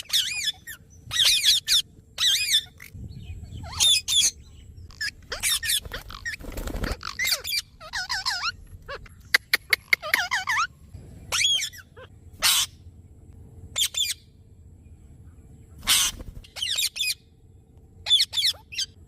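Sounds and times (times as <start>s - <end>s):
parrot harsh screeches: 4.9s - 9.0s, 11.3s - 12.7s, 15.8s - 17.1s.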